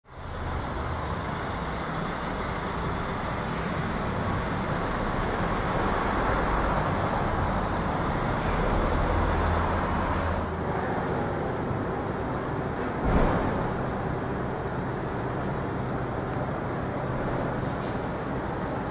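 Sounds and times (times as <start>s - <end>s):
street traffic noise: 0.0s - 18.9s.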